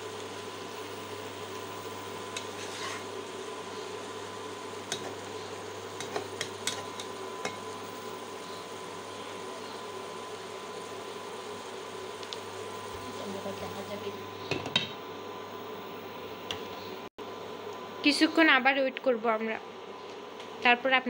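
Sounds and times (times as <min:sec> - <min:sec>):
food sizzling in oil: 0:00.0 - 0:18.9
spatula clicking and scraping pan: 0:02.3 - 0:03.1, 0:04.9 - 0:05.2, 0:06.0 - 0:07.6.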